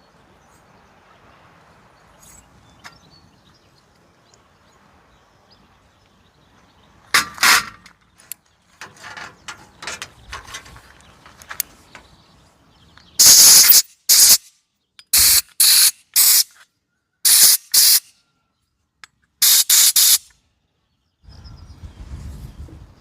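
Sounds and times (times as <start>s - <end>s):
pressurised spray hissing: 13.2s - 14.4s, 15.1s - 16.5s, 17.2s - 18.0s, 19.4s - 20.3s.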